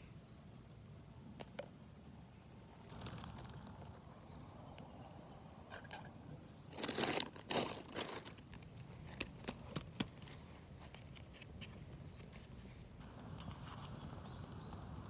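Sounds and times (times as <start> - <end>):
crinkling and rustling: 6.7 - 14.0.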